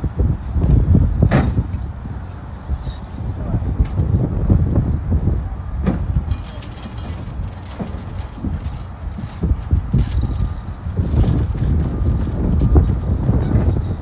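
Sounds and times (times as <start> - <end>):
wind buffeting microphone: 0.0 - 14.0
faint metallic jingling: 6.3 - 12.8.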